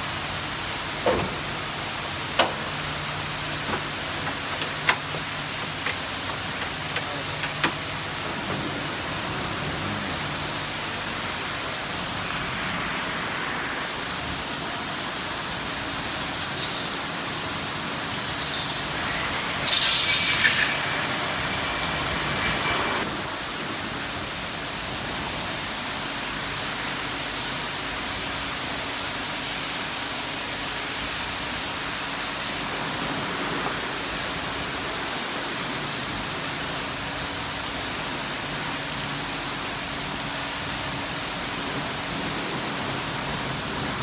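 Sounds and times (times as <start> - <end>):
car road and wind noise: 0.0 - 16.3
rattling clinking burst: 1.4 - 8.2, 18.1 - 22.8.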